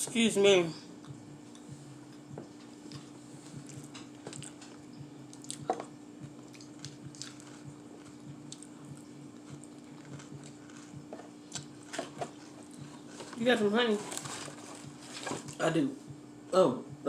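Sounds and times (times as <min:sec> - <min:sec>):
low electrical hum: 0:00.0 - 0:17.0
wet chewing: 0:02.9 - 0:13.4.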